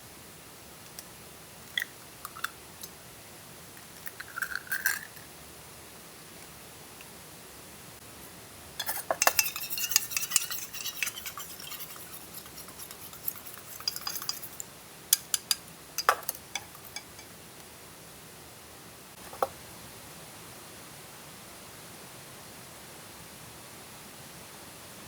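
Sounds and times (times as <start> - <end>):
utensils clinking on dishes: 8.8 - 17.3.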